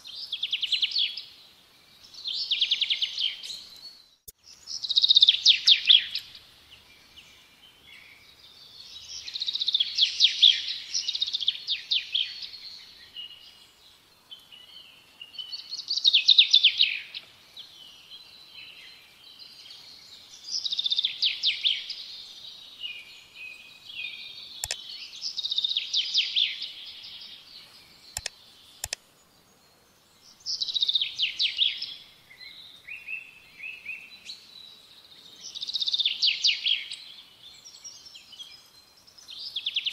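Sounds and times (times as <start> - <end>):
songbird trilling and warbling: 0.0 - 39.9
sharp clicks: 24.6 - 24.8, 28.2 - 29.0.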